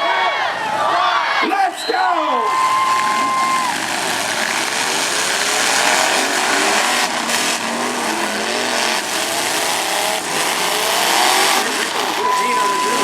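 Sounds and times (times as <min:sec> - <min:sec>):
truck engines revving hard: 0:02.2 - 0:13.0.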